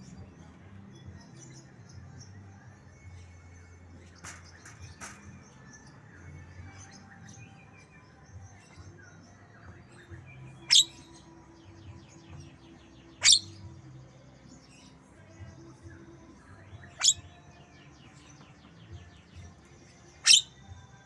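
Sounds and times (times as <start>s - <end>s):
bird chirps and trills: 0.0s - 21.0s.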